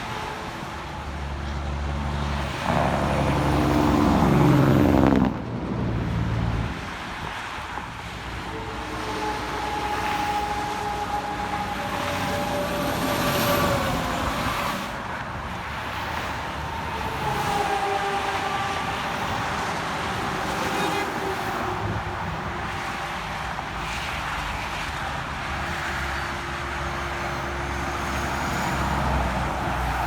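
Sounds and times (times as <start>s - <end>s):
highway road noise: 0.0s - 30.0s
whine of passing tyres: 0.0s - 30.0s
vehicle passing close: 2.0s - 6.9s.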